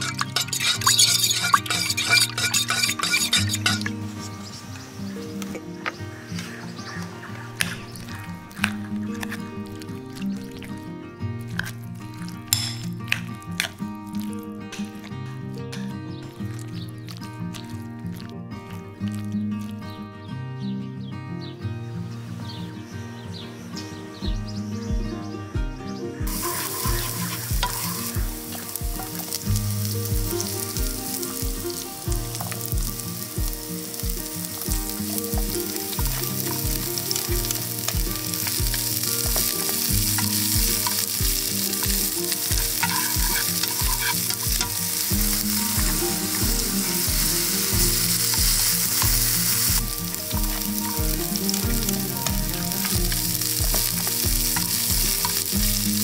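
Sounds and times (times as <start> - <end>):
food sizzling in a pan: 0.0 - 10.8, 11.5 - 15.0, 16.3 - 19.8, 26.3 - 56.0
background music with beat: 24.2 - 56.0.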